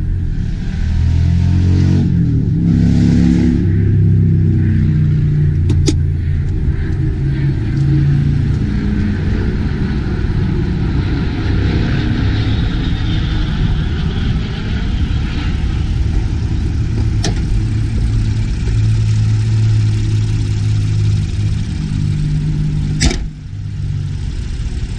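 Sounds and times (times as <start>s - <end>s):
car engine idling: 3.5s - 11.0s, 12.6s - 24.9s
sharp click: 23.0s - 23.3s.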